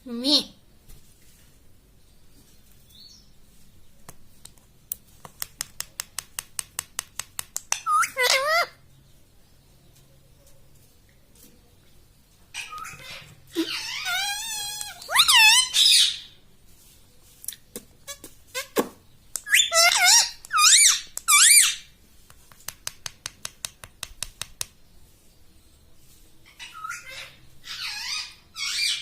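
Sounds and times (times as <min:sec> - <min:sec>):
parrot squeaky warbling calls: 0:07.8 - 0:08.8, 0:12.6 - 0:16.4, 0:19.4 - 0:21.9, 0:26.6 - 0:29.0.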